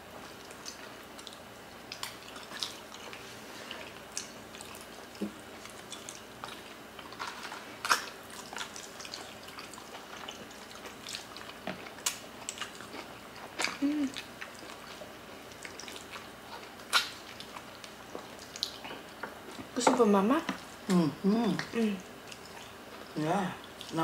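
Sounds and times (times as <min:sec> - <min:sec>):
wet chewing and lip smacks: 0:00.2 - 0:07.2, 0:07.8 - 0:19.7, 0:21.6 - 0:24.0
person humming: 0:13.8 - 0:14.2, 0:20.9 - 0:22.0.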